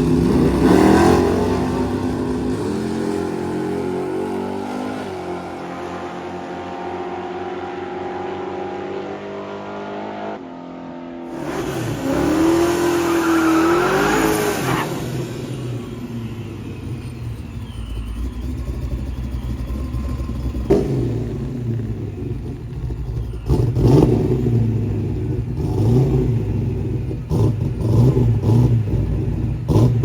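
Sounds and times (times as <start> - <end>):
car engine revving hard: 0.0 - 10.4, 11.3 - 16.1, 20.5 - 30.0
car engine idling: 15.3 - 30.0.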